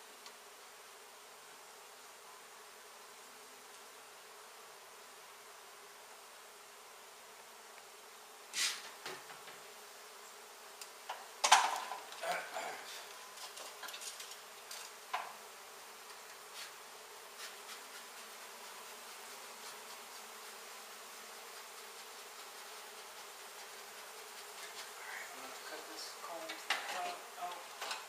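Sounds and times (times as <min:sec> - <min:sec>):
bees buzzing: 0:00.0 - 0:28.0
knocks and clatters of handling: 0:27.8 - 0:28.0.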